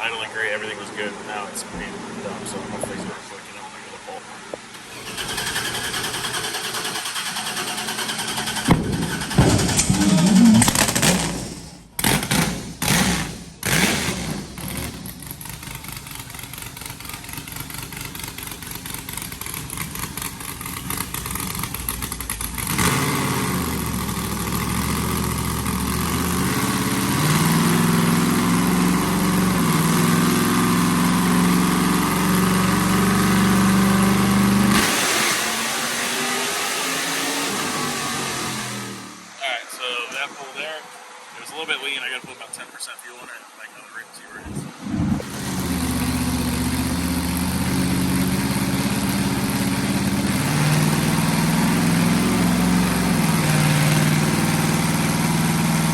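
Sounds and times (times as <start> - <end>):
engine blipping and stumbling: 4.7 - 36.8, 41.4 - 55.9.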